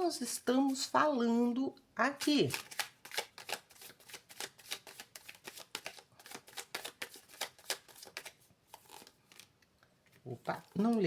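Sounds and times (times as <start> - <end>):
cards being shuffled: 2.2 - 11.0.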